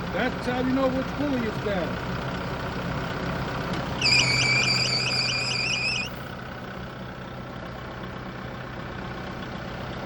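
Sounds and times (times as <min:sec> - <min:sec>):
engine idling: 0:00.0 - 0:10.0
drive belt squealing: 0:03.9 - 0:06.3.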